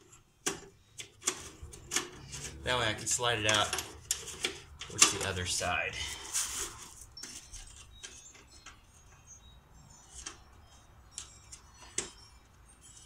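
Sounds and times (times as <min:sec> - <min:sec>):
metal parts clicking and clinking: 0:00.4 - 0:05.7.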